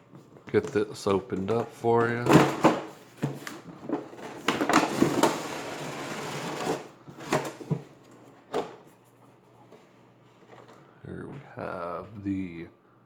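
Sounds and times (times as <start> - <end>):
packaging rustling: 0.2 - 8.8.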